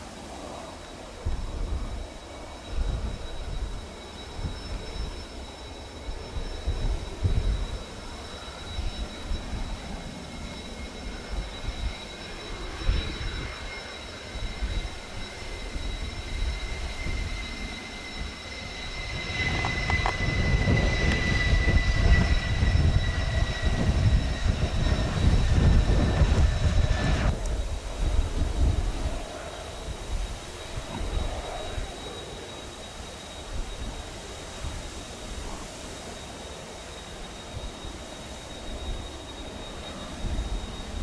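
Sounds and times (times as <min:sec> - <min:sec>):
jet engine whine: 0:00.0 - 0:41.0
gusty rumble: 0:14.4 - 0:32.0.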